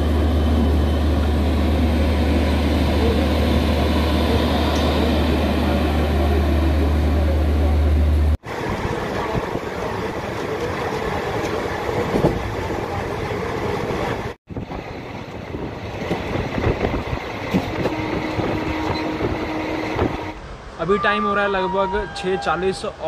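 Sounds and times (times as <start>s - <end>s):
rushing wind: 8.2s - 23.0s.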